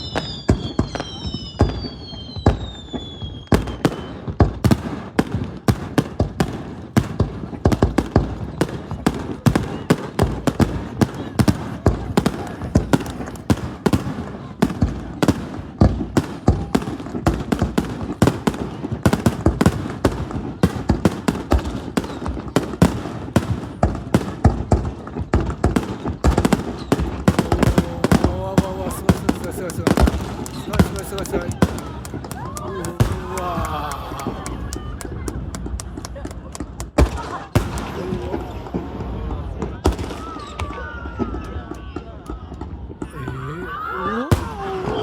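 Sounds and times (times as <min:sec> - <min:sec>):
falling whistle of firework shell: 0:00.0 - 0:04.3
fireworks bangs and crackles: 0:00.0 - 0:45.0.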